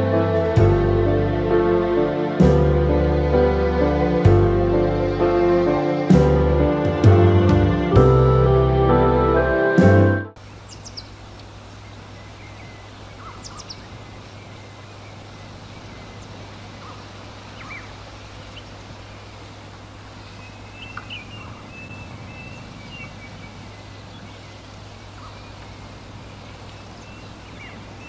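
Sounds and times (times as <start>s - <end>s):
low background noise: 0.0s - 28.0s
warbling bird call: 20.1s - 28.0s.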